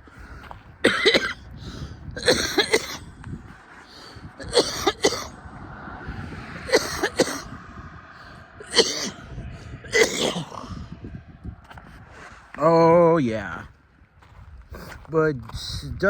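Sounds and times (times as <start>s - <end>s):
man coughing hard: 0.8s - 1.5s, 2.2s - 3.1s, 4.4s - 5.4s, 6.6s - 7.6s, 8.6s - 10.8s.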